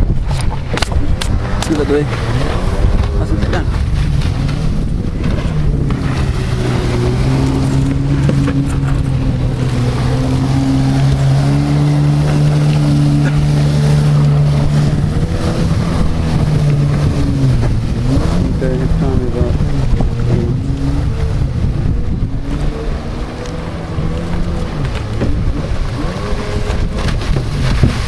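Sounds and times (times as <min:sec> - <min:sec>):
jet ski engine running: 0:00.0 - 0:28.0
wind rumbling on microphone: 0:00.0 - 0:28.0.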